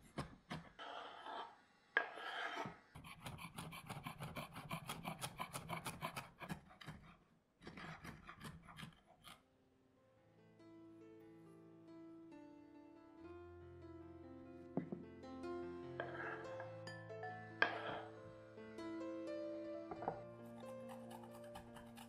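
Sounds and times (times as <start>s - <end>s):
knife blade scraping board: 0.6s - 9.4s, 16.0s - 16.6s, 17.6s - 18.1s, 19.9s - 22.0s
knife chopping on wooden board: 3.0s - 9.3s, 19.9s - 22.0s
soft piano music: 10.0s - 22.0s.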